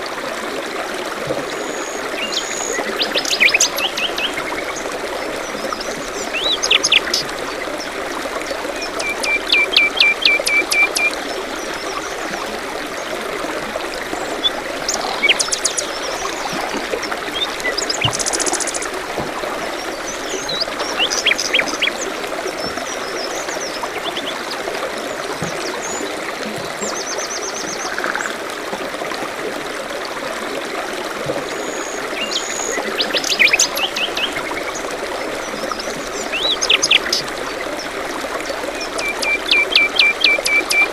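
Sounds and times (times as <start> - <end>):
stream trickling: 0.0 - 40.9.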